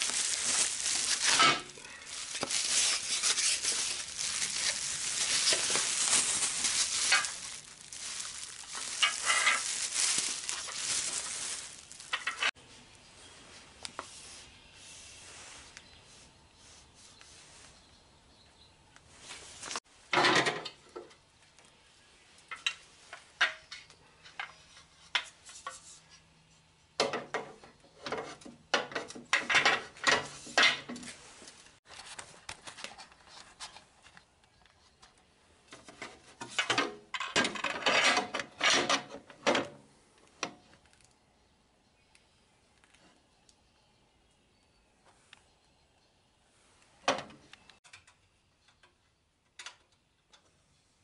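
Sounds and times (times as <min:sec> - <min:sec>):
tools clattering and clinking: 0:00.0 - 0:12.6, 0:35.8 - 0:39.7.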